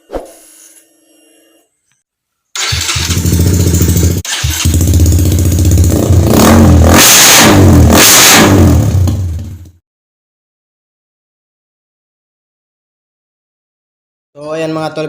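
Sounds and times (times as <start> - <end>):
motorcycle engine revving: 2.6 - 9.8.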